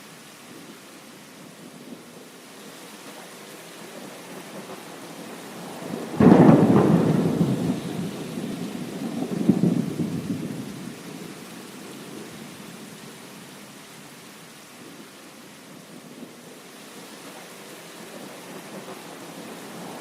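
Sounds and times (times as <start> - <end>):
heavy rain: 0.0 - 20.0
thunder rumbling: 3.9 - 12.7.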